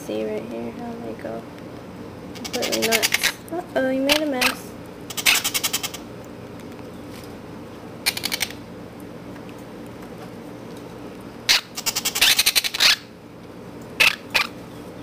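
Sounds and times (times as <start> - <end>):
baby parrots begging chatter: 2.4 - 3.4, 4.1 - 6.1, 8.1 - 8.6, 11.5 - 13.1, 14.0 - 14.6.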